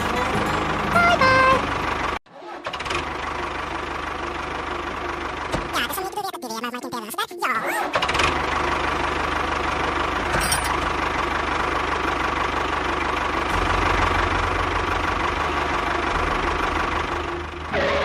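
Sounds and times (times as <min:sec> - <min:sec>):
engine knocking rumble: 0:02.8 - 0:06.4, 0:07.9 - 0:17.7.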